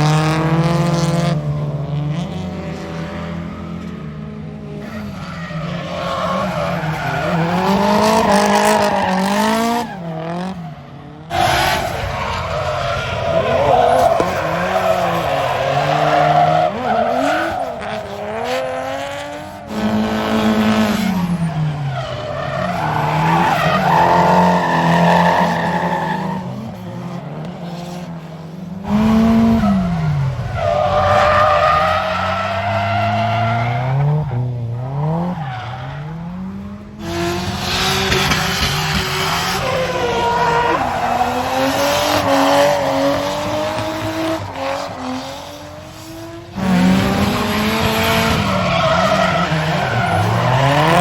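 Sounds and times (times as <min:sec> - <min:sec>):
car engines revving: 0:00.0 - 0:51.0
tyres screeching: 0:11.3 - 0:18.4.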